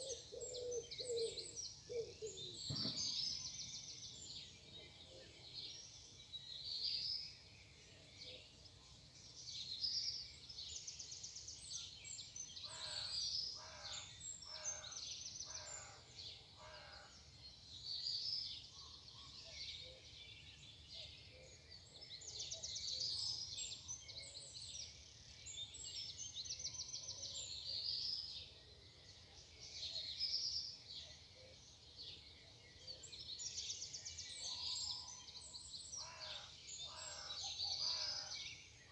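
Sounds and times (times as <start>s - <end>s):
lower repeated bird calls: 0.0s - 3.8s
songbirds singing: 0.0s - 38.9s.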